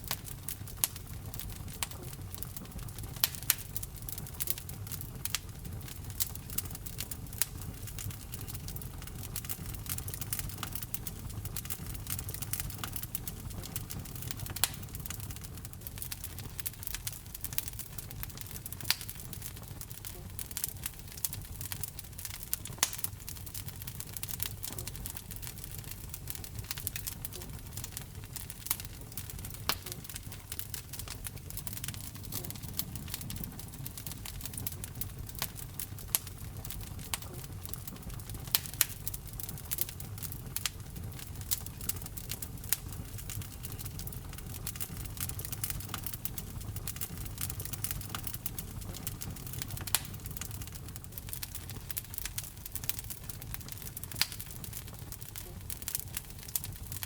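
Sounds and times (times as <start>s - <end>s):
fire crackling and popping: 0.0s - 57.0s
low rumble of flames: 0.0s - 57.0s.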